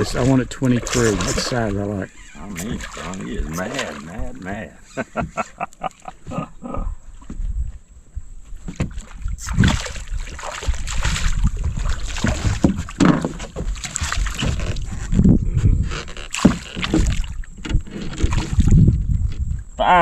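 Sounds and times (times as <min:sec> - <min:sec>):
fish thrashing: 0:00.0 - 0:07.2, 0:08.5 - 0:19.7
water splashing against boat hull: 0:00.0 - 0:19.8
wind rumble on microphone: 0:06.3 - 0:20.0.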